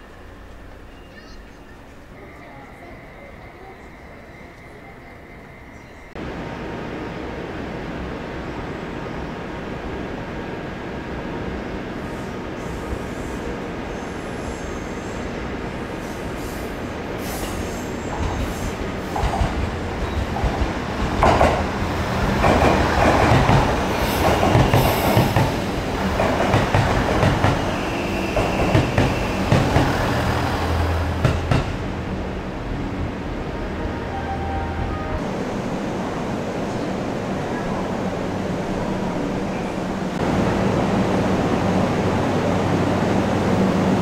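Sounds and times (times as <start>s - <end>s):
train wheels rumbling on rails: 6.0s - 33.7s.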